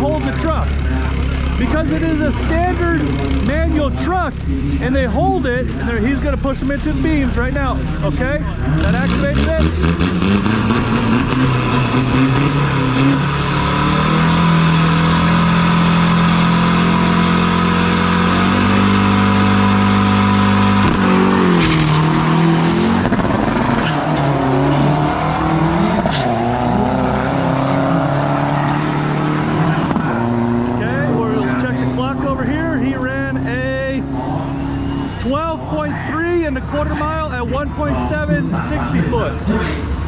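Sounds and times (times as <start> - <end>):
truck engine revving: 0.0 - 40.0.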